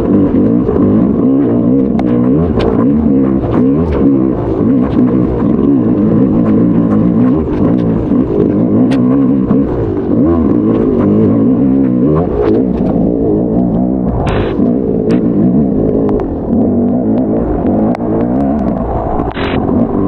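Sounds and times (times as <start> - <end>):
motocross bike engine revving: 0.0 - 20.0
sharp clacks: 0.0 - 20.0.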